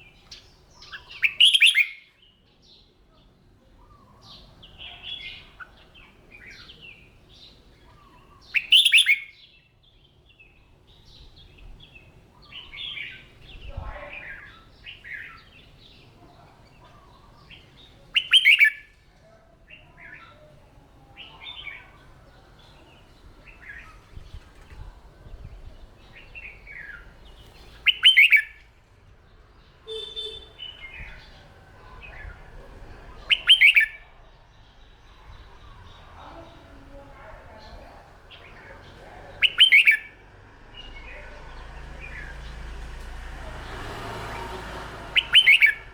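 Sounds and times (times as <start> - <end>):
bird chirps and whistled notes: 0.8 - 2.1, 8.5 - 9.4, 18.2 - 18.9, 27.8 - 28.6, 29.9 - 31.2, 33.2 - 34.0, 39.4 - 40.1, 45.1 - 45.9.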